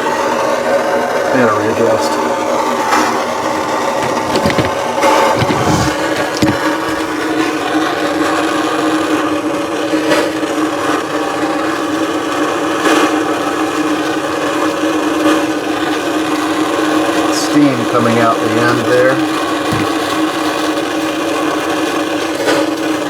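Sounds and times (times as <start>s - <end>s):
gas torch flame rushing: 4.0s - 7.4s.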